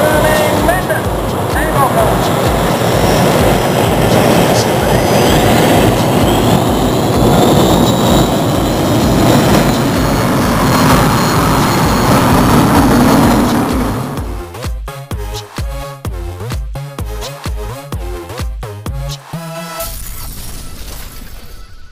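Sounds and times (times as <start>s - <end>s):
high whine rising in pitch: 0.0s - 14.7s
regular low beat: 0.0s - 19.6s.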